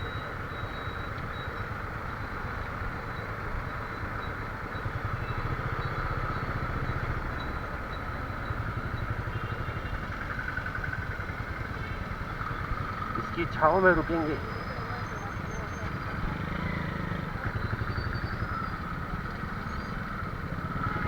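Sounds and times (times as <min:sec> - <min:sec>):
road and traffic noise: 0:00.0 - 0:21.0
motorcycle engine running: 0:14.4 - 0:21.0.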